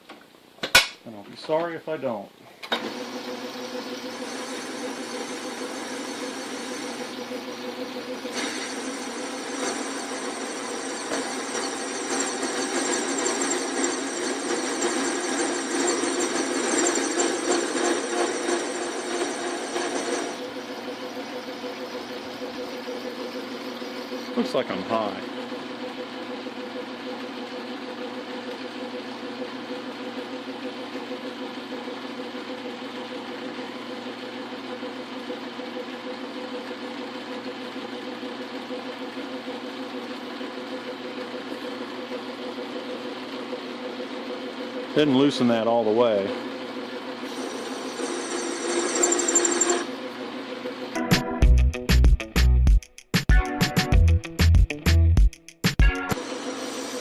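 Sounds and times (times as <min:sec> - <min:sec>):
metal lathe running: 0:02.8 - 0:27.8, 0:46.6 - 0:50.9, 0:56.2 - 0:57.0
high-pitched ringing of cutting steel: 0:03.2 - 0:24.1, 0:47.3 - 0:50.0.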